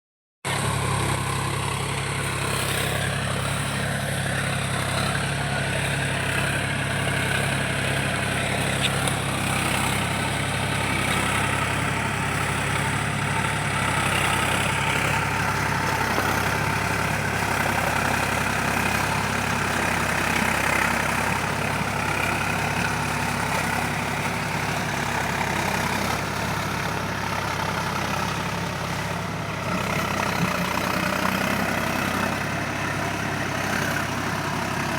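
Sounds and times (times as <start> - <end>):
tractor diesel engine running: 0.4 - 34.9.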